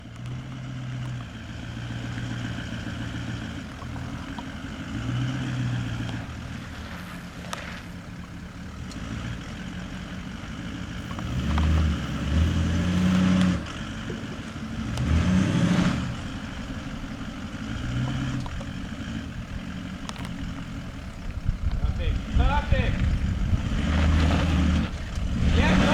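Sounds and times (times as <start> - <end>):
diesel engine revving: 0.0 - 25.9.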